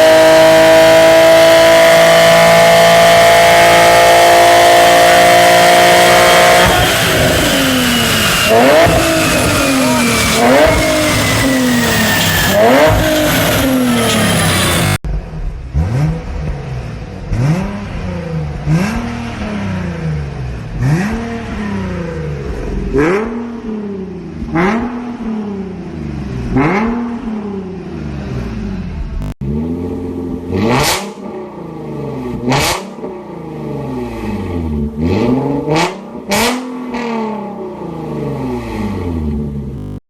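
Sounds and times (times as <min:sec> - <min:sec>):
car engine revving: 0:00.0 - 0:40.0
exhaust cracks: 0:05.0 - 0:27.3.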